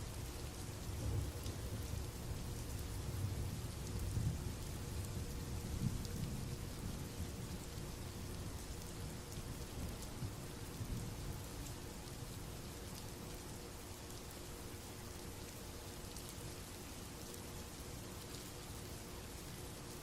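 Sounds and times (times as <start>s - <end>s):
steady rain: 0.0s - 20.0s
rain drop ticks: 0.3s - 5.2s, 5.8s - 13.4s.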